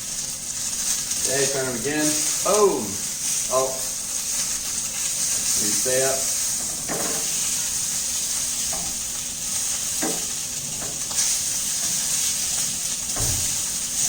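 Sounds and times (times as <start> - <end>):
steaks sizzling in a frying pan: 0.0 - 14.0
dull thump: 13.2 - 13.6.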